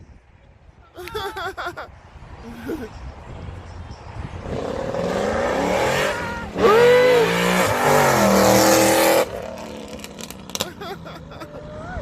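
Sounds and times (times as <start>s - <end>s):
car engine revving: 4.4s - 10.8s.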